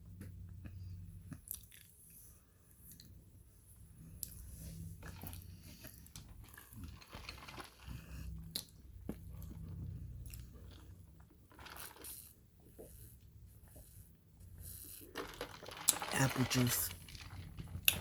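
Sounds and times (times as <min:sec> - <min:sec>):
chewing and crunching: 0:01.3 - 0:03.2, 0:05.0 - 0:14.0.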